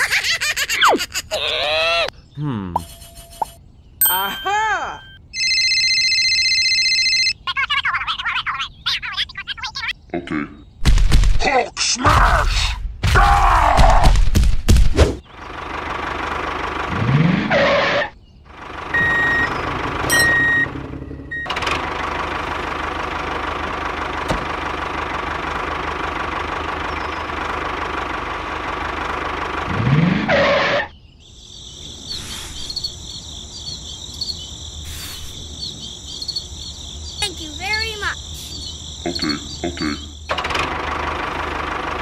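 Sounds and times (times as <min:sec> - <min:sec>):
tractor engine running: 0:15.2 - 0:30.8, 0:35.6 - 0:42.0
crickets chirping: 0:30.9 - 0:40.4.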